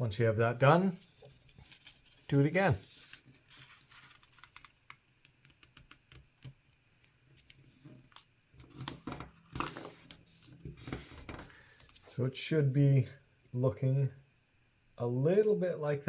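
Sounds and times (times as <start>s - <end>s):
paper being folded and creased: 0.9s - 5.0s, 7.4s - 12.1s.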